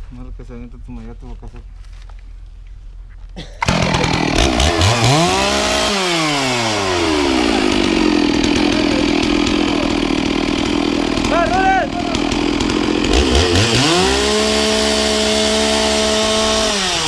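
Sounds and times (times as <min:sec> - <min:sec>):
chainsaw engine: 0:03.6 - 0:17.0.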